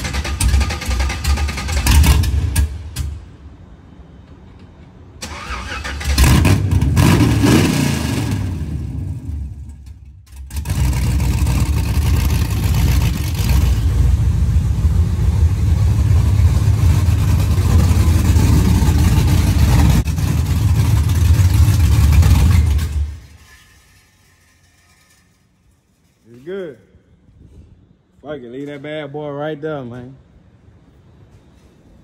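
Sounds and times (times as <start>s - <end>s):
car engine revving: 5.3s - 9.5s, 10.4s - 23.3s
car engine rumbling steadily: 8.1s - 24.0s.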